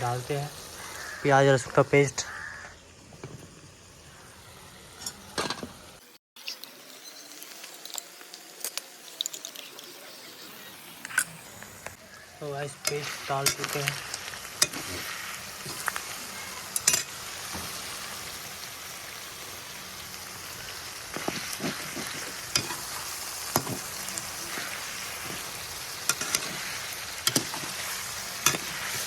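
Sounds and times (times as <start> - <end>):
chicken sizzling in a pan: 0.0 - 29.0
spoon scraping a pan: 12.8 - 18.0, 21.1 - 29.0.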